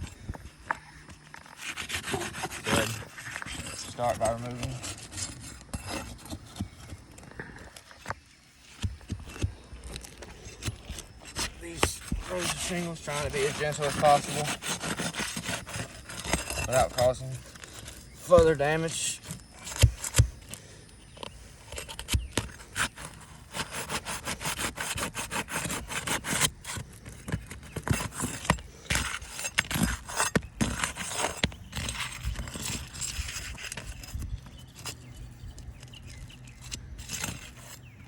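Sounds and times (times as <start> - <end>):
shingles being pried apart: 0.1 - 38.0.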